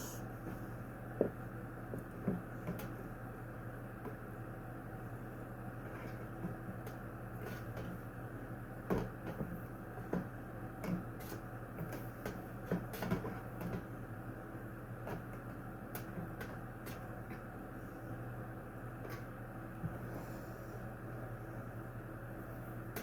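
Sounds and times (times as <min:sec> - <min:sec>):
steady low hum: 0:13.8 - 0:23.0.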